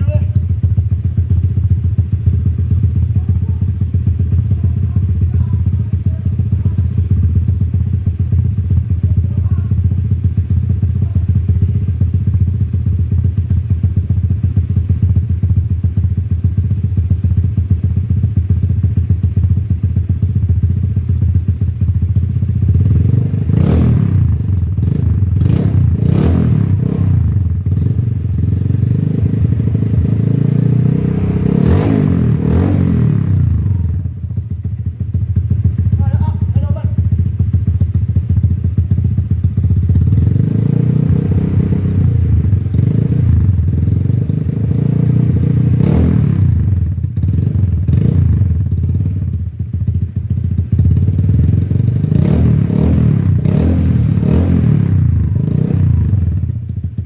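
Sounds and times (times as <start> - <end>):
scooter engine idling: 0.0 - 57.0
engine revving: 22.8 - 33.9, 40.0 - 48.5, 51.3 - 56.4.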